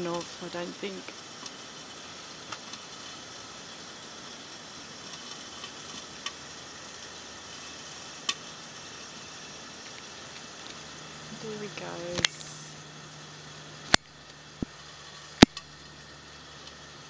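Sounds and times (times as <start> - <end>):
steady outdoor hiss: 0.0 - 17.0
sharp clicks or snaps: 13.9 - 14.7, 15.4 - 15.7.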